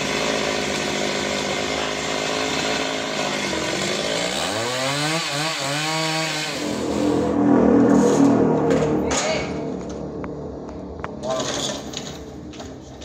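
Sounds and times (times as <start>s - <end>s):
saw blade cutting log: 0.0s - 7.2s
low hum: 6.6s - 13.0s.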